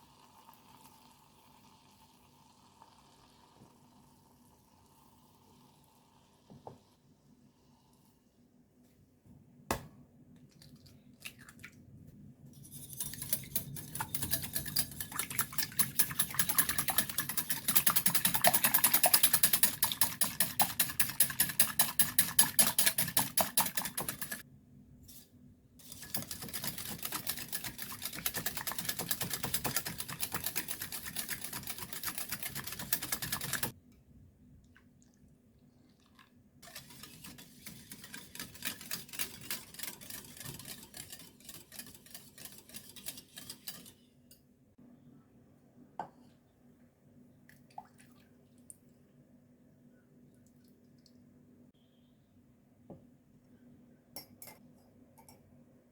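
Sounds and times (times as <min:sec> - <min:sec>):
whisk clicking against bowl: 0:12.8 - 0:24.4, 0:25.8 - 0:33.8, 0:36.6 - 0:44.0.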